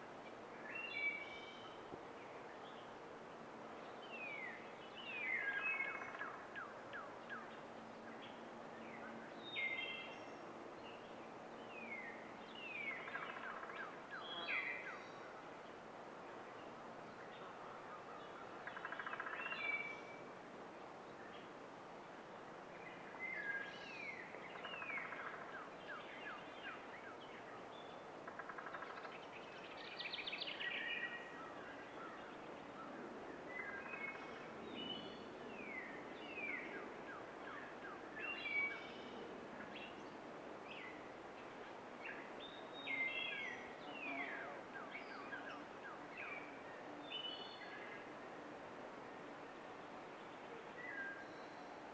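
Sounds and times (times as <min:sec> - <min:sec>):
songbirds singing: 0:22.8 - 0:48.1.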